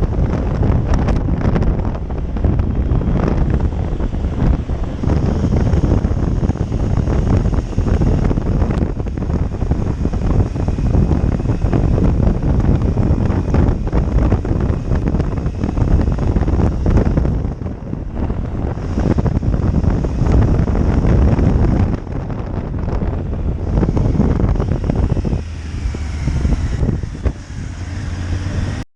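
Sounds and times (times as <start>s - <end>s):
motorcycle engine rumble: 0.0s - 28.9s
wind buffeting microphone: 0.0s - 28.9s.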